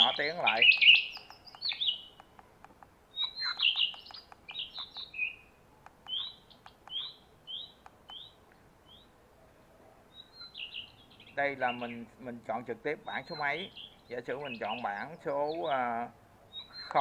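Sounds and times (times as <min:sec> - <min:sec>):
recorded bird chirps from speaker: 0:00.0 - 0:02.3, 0:03.1 - 0:09.1, 0:10.1 - 0:17.0
faint clicks: 0:00.6 - 0:05.1.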